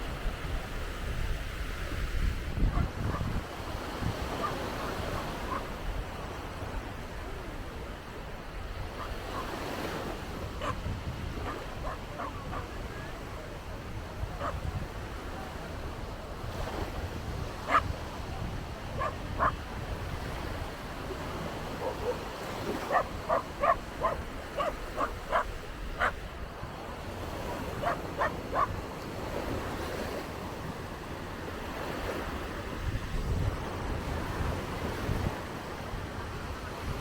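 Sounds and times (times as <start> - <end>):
surf: 0.0 - 37.0
wind buffeting microphone: 0.0 - 37.0
dog barking high yaps: 10.6 - 10.8, 11.4 - 12.7, 17.7 - 17.9, 19.0 - 19.6, 22.9 - 26.2, 27.8 - 28.8.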